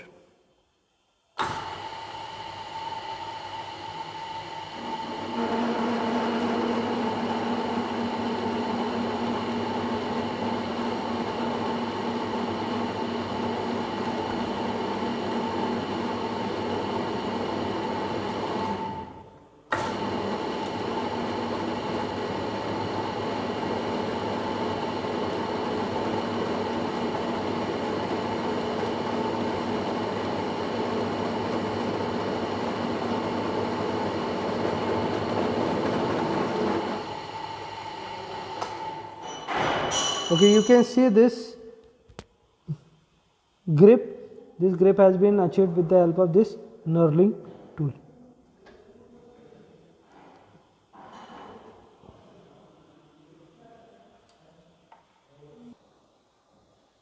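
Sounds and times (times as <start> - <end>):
lathe machine hum: 1.4 - 40.8.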